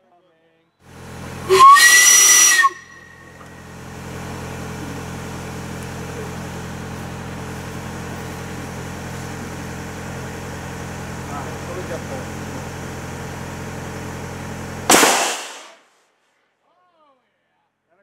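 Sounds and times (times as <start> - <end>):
steady low hum: 2.7 - 15.6
air cannon firing with whistle: 14.9 - 15.8.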